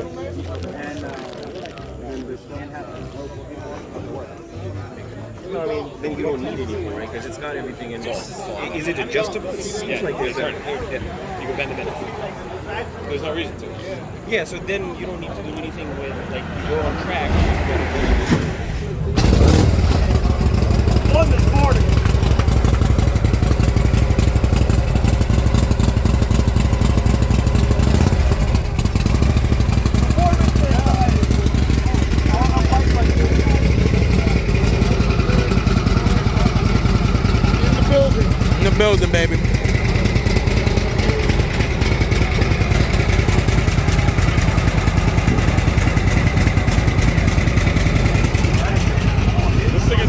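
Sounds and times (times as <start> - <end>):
motorcycle engine idling: 19.2 - 50.0.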